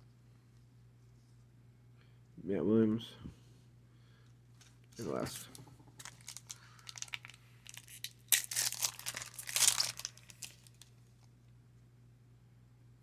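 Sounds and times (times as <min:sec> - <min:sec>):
wrapper crinkling: 0:04.6 - 0:11.0
wrapper tearing open: 0:05.0 - 0:10.9.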